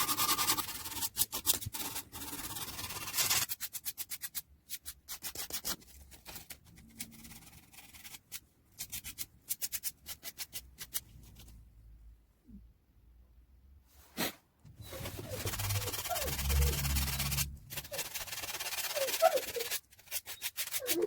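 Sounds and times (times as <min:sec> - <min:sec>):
hand sanding strokes: 0:14.9 - 0:21.0.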